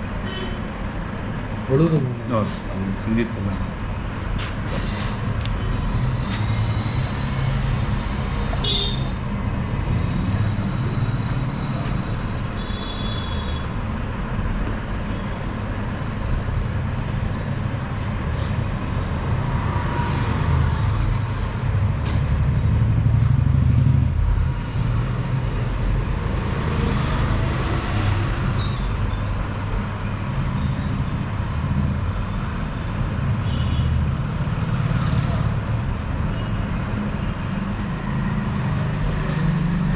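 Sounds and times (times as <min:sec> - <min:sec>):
vehicle traffic rumble: 0:00.0 - 0:39.9
car horn toot: 0:08.6 - 0:09.1.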